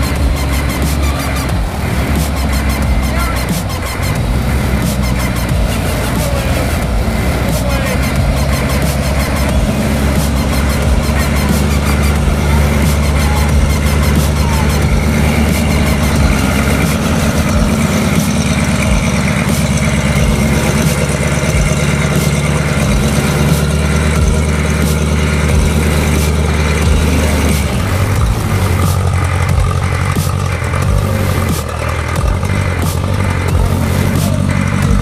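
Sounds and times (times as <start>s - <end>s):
off-road vehicle engine running: 0.0s - 35.0s.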